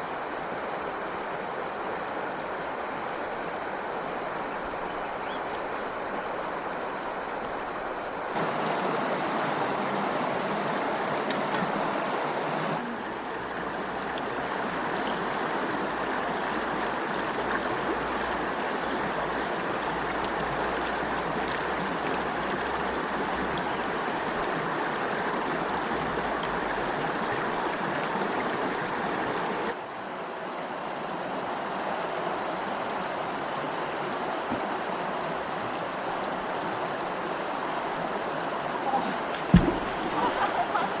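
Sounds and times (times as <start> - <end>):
stream rushing over rocks: 8.2 - 41.0.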